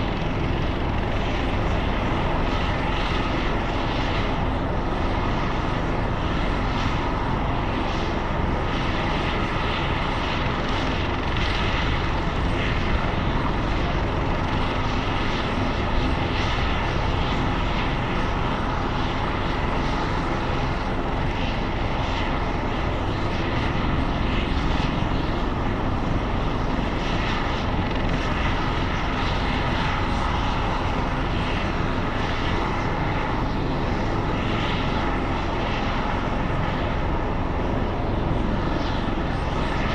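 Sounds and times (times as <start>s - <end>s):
helicopter engine whine: 0.0s - 39.9s
helicopter rotor noise: 0.0s - 39.9s.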